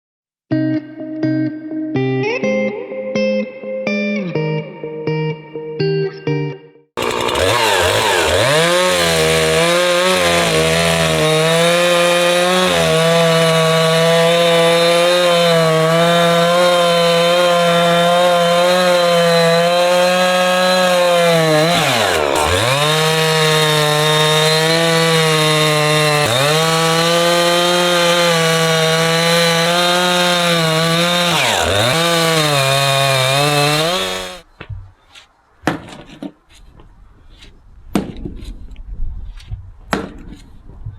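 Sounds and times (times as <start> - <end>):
chainsaw running at high revs: 7.0 - 34.4.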